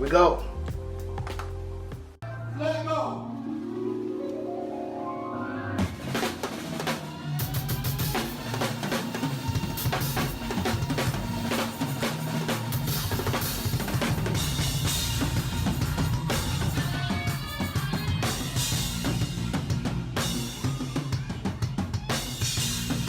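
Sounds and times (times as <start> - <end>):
fast drum kit playing: 0.0 - 2.2, 5.8 - 23.0
pitched instruments: 0.0 - 11.6.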